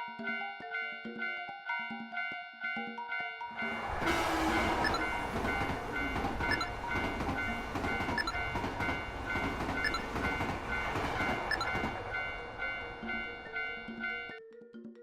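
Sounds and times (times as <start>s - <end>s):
railroad crossing bell dinging: 0.2s - 14.4s
train wheels rumbling on rails: 3.6s - 14.2s
rail joint clicks: 3.6s - 14.4s.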